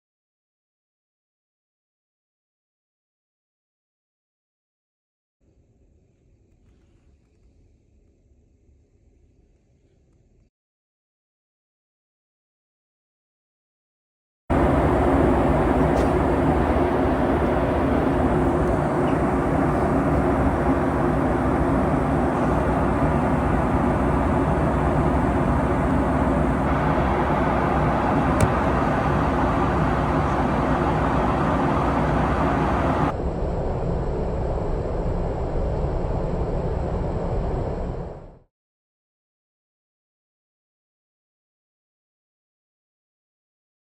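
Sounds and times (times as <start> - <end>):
airliner cabin drone: 14.5 - 38.4.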